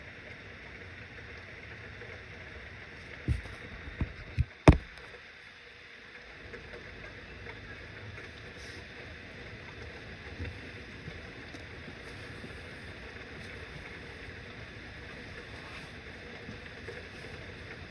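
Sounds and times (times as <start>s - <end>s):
dull thumps: 3.3s - 5.0s.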